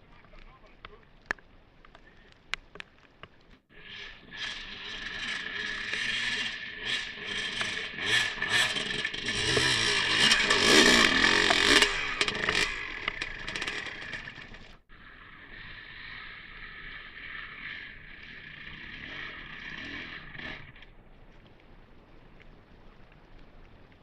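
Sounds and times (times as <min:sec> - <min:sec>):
dirt bike engine revving: 0:03.7 - 0:20.9
scraping and rattling: 0:04.4 - 0:14.8.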